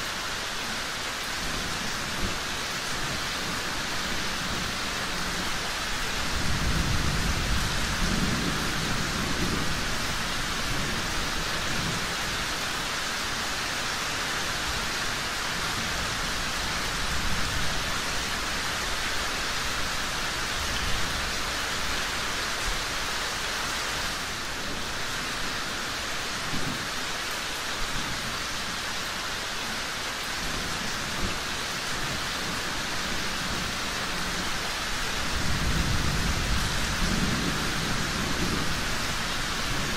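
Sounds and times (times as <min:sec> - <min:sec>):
heavy rain falling: 0:00.0 - 0:39.9
thunder rumbling: 0:06.2 - 0:12.1, 0:35.2 - 0:39.9.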